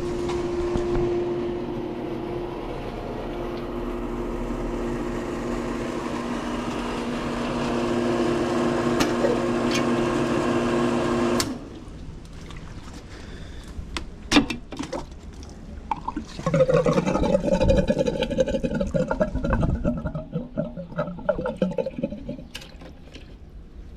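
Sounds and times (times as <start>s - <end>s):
pool pump motor humming: 0.0s - 13.6s.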